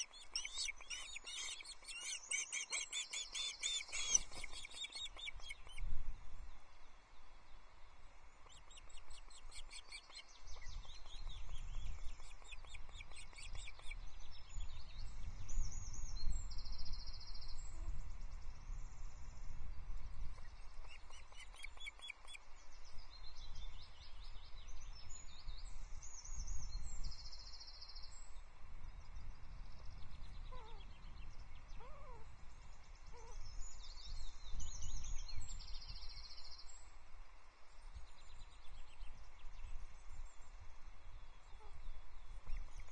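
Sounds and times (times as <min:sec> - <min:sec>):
birds chirping: 0:00.0 - 0:05.9
wind on microphone: 0:10.3 - 0:21.8.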